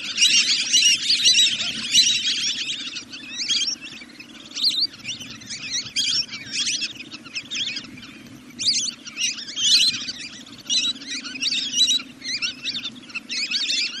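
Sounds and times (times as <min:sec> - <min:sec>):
recorded duck calls: 0:00.0 - 0:03.9
steady low hum: 0:00.0 - 0:14.0.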